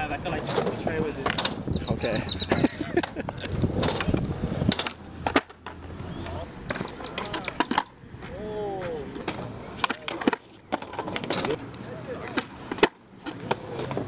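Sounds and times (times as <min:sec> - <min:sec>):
skateboard rolling on pavement: 0:00.0 - 0:14.0
skateboard cracking and clattering: 0:00.3 - 0:01.6, 0:02.5 - 0:14.0
person exclaiming: 0:08.3 - 0:09.1.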